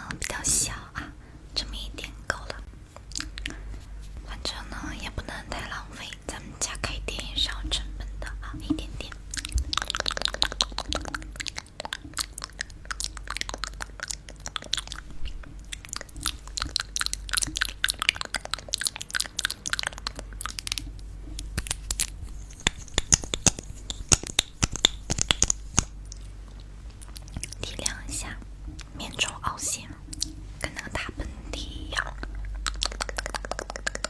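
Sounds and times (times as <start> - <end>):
crisp crackling and clicking: 8.6 - 34.0.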